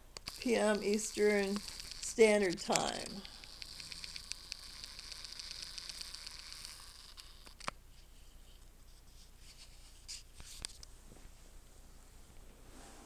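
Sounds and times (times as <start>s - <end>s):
faint scratchy hiss with clicks: 0.0s - 12.6s
sharp clicks: 0.1s - 7.8s.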